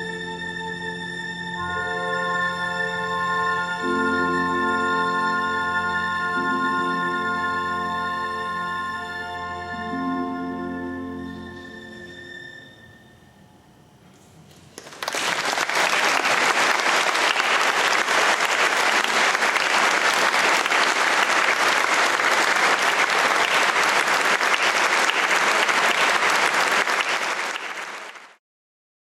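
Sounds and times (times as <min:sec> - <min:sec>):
audience applauding: 0:14.5 - 0:28.4.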